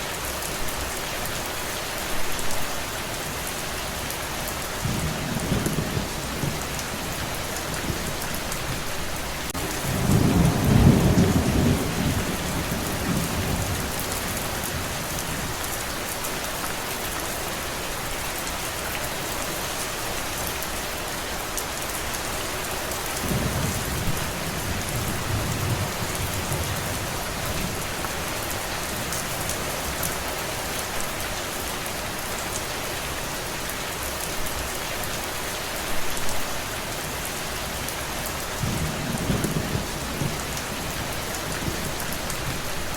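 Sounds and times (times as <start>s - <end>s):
heavy rain: 0.0s - 42.9s
distant thunder rolling: 4.8s - 15.6s, 23.2s - 30.0s, 38.6s - 42.9s.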